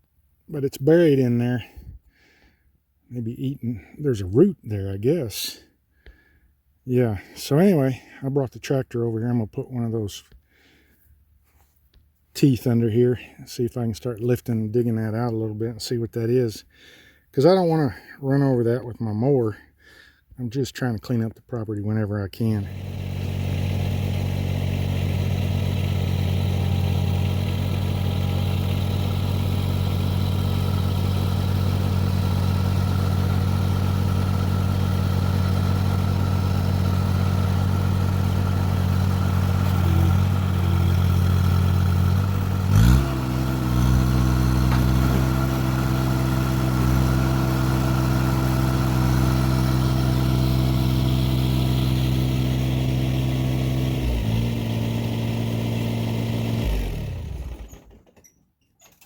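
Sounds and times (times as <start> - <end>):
tractor engine running: 22.4 - 58.1.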